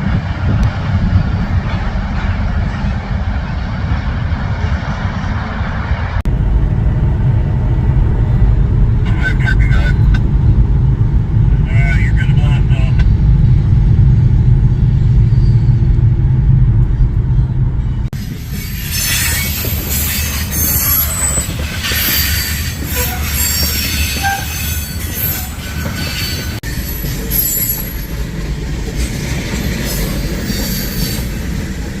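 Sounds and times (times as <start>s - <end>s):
loud low rumble: 0.0s - 18.2s
train rolling by: 0.0s - 32.0s
train wheels squealing on rails: 14.8s - 16.1s, 18.2s - 28.4s, 29.0s - 32.0s.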